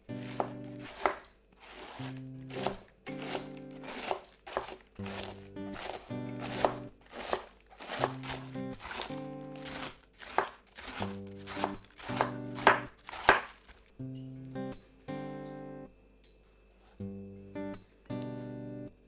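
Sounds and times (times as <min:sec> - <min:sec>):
background music: 0:00.0 - 0:16.4
knife strikes on cutting board: 0:00.2 - 0:01.2, 0:02.5 - 0:13.5.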